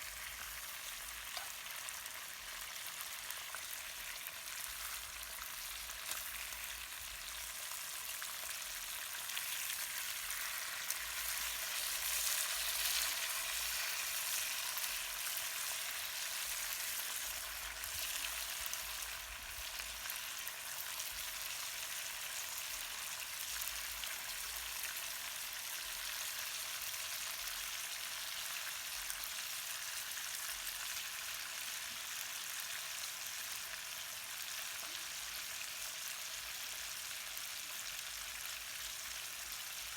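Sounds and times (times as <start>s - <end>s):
fish frying in hot oil: 0.0s - 39.9s.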